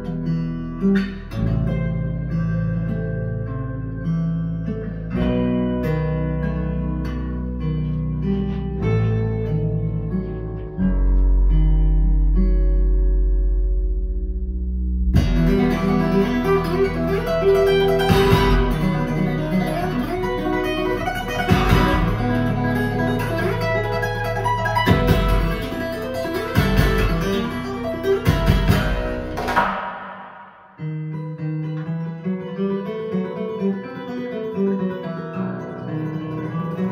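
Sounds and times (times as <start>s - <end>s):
held low bass note: 11.4s - 29.8s
guitar-led band music: 15.2s - 36.9s.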